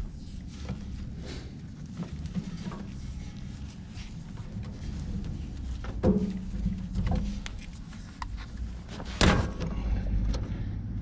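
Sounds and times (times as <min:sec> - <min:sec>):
steady low hum: 0:00.0 - 0:11.0
tape crackles and clicks: 0:01.9 - 0:09.1.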